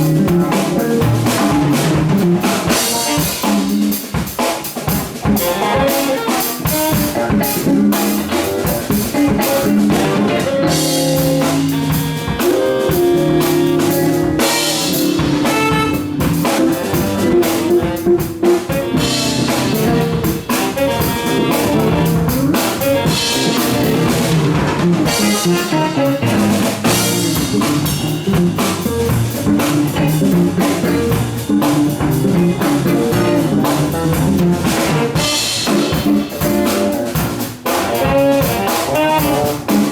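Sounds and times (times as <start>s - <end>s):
bass line: 0.0s - 4.0s, 6.6s - 39.9s
drum kit groove: 0.0s - 39.9s
electric guitar: 0.0s - 39.9s
horns: 5.4s - 7.6s, 9.2s - 27.9s, 33.1s - 33.8s, 34.4s - 39.9s.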